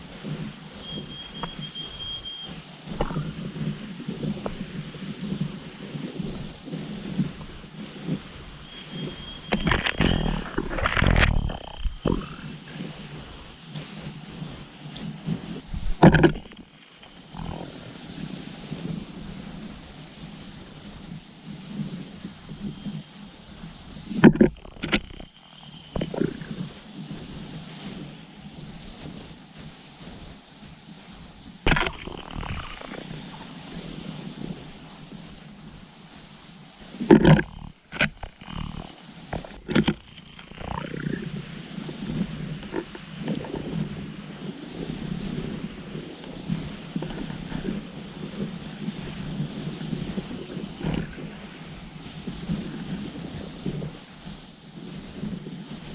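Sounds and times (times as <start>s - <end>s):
high thin bird chirps: 0.3s - 3.4s, 8.1s - 10.3s
brief knocks or rustles: 15.8s - 16.6s.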